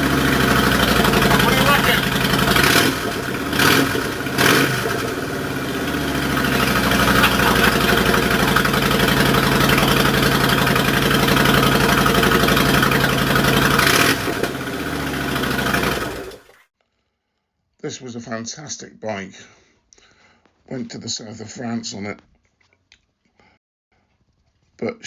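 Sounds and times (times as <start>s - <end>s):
motorcycle engine revving and idling: 0.0s - 16.6s.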